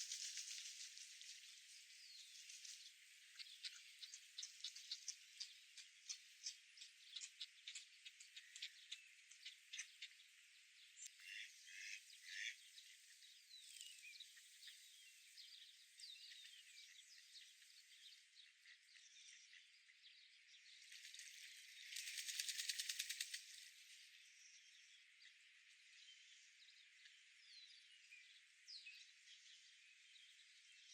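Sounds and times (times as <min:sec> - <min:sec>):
small birds chirping: 0:00.0 - 0:30.9
bird rattling trill: 0:21.9 - 0:23.6.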